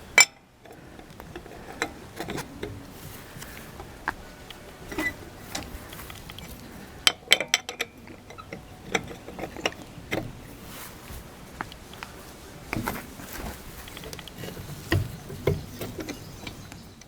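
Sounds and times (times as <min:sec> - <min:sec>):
metal hand tools clinking: 0:00.2 - 0:17.0.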